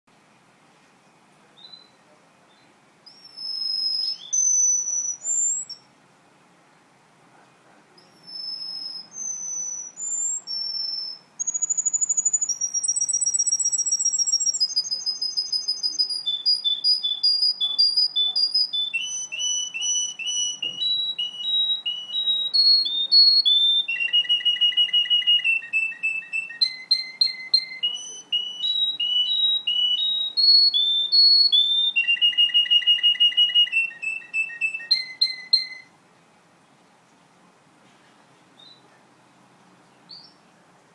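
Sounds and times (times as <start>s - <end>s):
canary singing trills: 1.6s - 5.9s, 8.0s - 35.9s, 40.0s - 40.5s.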